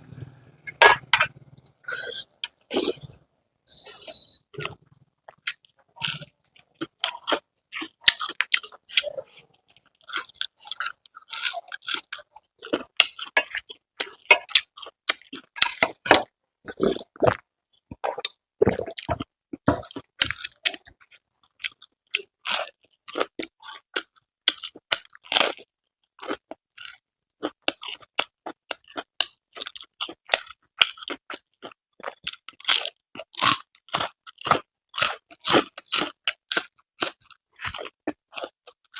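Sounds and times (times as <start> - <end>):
person chewing crunchy food: 0.7 - 3.3, 4.5 - 38.9.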